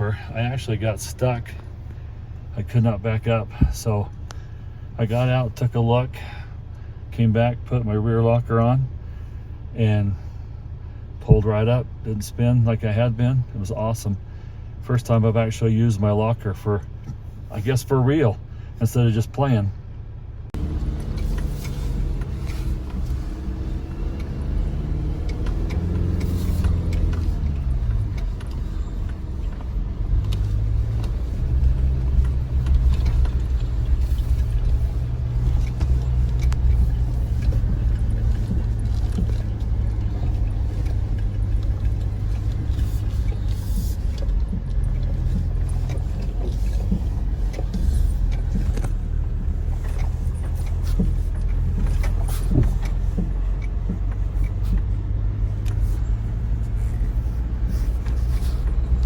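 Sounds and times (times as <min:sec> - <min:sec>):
pickup truck engine running: 0:20.6 - 0:59.0.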